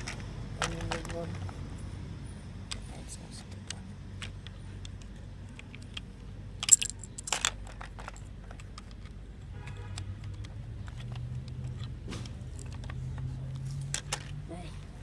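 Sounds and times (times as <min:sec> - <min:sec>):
plastic bricks clicking and rattling: 0:00.0 - 0:01.5, 0:03.4 - 0:09.3, 0:09.9 - 0:13.3.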